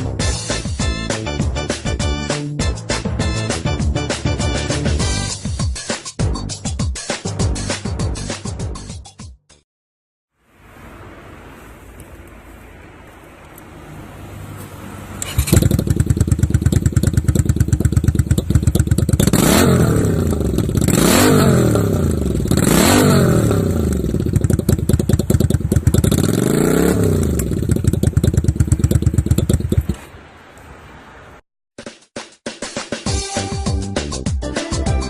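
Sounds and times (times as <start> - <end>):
motorcycle engine revving: 13.5 - 30.1.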